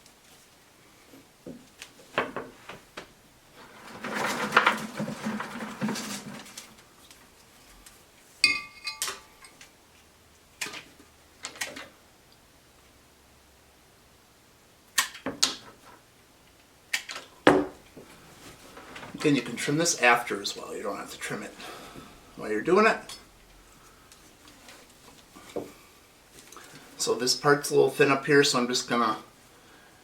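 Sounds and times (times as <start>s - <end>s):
dense rustling: 2.0s - 7.0s.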